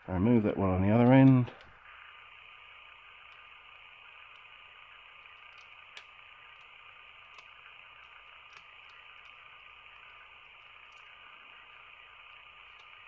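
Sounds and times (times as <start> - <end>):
steady background hiss: 0.0 - 13.0
screwdriver clicks: 7.3 - 9.4.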